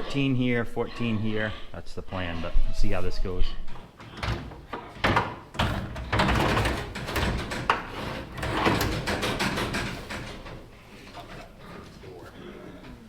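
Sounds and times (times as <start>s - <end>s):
metal trailer door and gates rattling: 4.0s - 12.2s.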